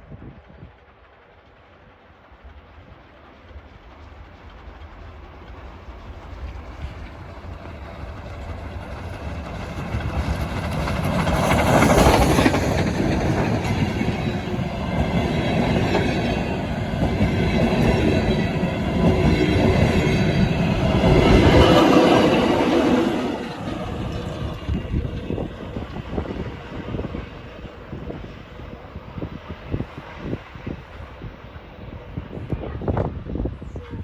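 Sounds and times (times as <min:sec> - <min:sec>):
steam train passing: 0:00.0 - 0:34.0
wheels clattering over rail joints: 0:04.6 - 0:28.8.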